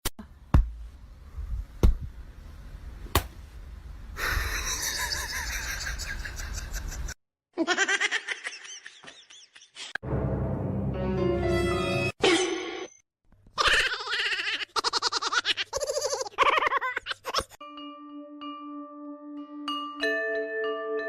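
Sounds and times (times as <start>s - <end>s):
people laughing: 4.4s - 9.9s.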